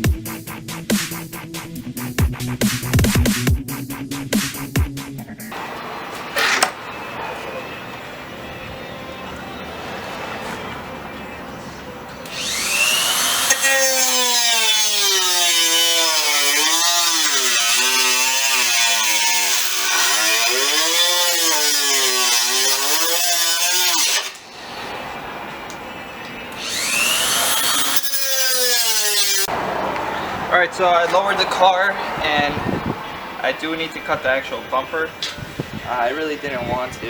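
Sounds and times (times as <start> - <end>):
power cutting tool cutting metal: 5.5 - 7.7, 12.2 - 24.5, 26.6 - 29.5.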